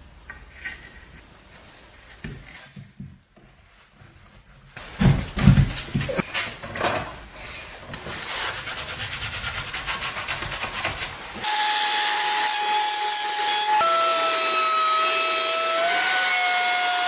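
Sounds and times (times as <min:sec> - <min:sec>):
rubbing strokes on wood: 0:08.0 - 0:11.4.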